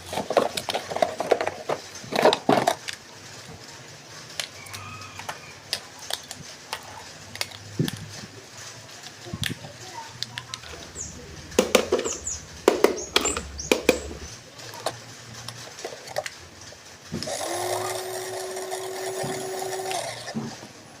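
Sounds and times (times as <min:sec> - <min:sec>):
plastic toy clicks and knocks: 0:00.0 - 0:03.1, 0:04.3 - 0:08.3, 0:11.5 - 0:16.4
small electric motor whirring: 0:17.3 - 0:20.4.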